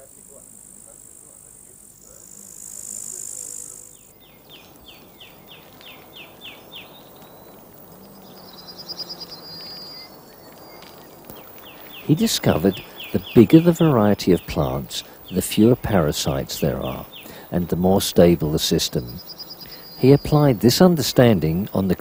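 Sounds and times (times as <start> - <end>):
high steady insect buzz: 0.0 - 22.0
bird singing descending notes: 2.0 - 22.0
fast bird trill: 8.2 - 21.8.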